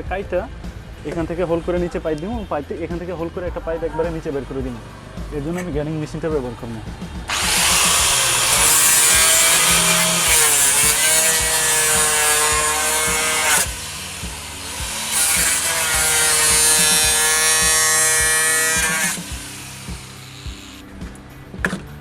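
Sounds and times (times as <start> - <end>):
electric grinder cutting metal: 7.3 - 20.9.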